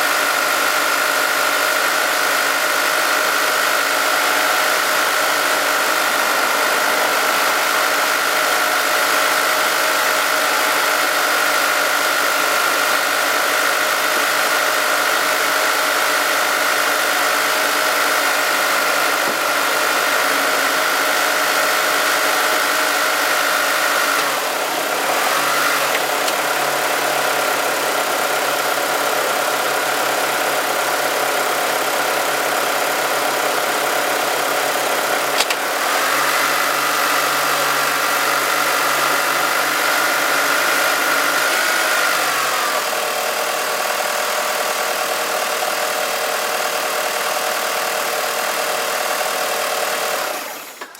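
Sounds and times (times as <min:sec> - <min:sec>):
car engine idling: 0:00.0 - 0:50.9
high-pitched turbo whine: 0:03.3 - 0:12.8.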